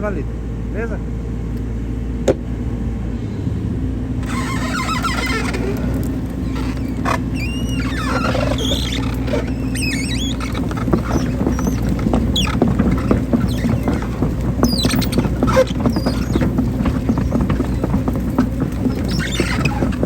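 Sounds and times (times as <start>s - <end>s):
excavator engine running: 0.4s - 20.0s
metallic squeaks and creaks: 4.2s - 20.0s.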